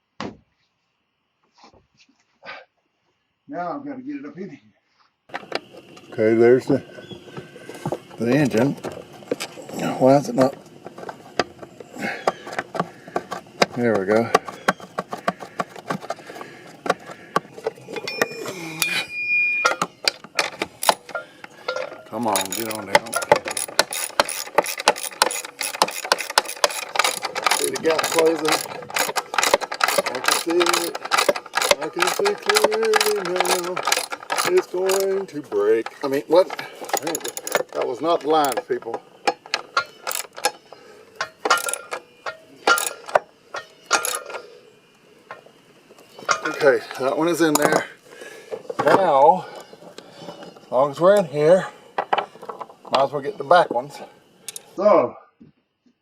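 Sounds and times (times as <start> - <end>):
high squeal: 17.7 - 20.1
light metallic clinks: 17.8 - 44.5
ratchet wrench clicking: 19.7 - 38.7, 39.3 - 40.6, 41.3 - 43.2, 43.8 - 44.4.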